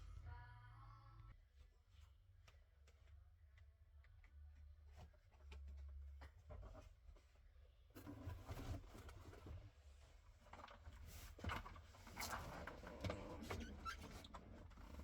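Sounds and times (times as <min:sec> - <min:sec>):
faint low hum: 0:00.0 - 0:06.5.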